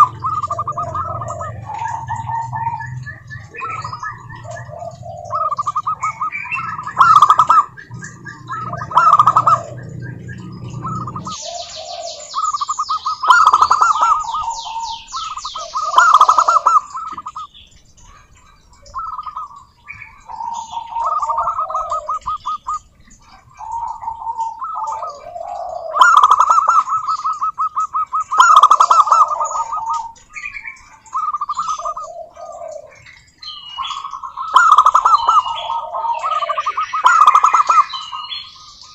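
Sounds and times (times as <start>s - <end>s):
low hum: 0.0s - 11.6s
fast high chirping: 0.0s - 18.0s
doves cooing: 0.0s - 38.9s.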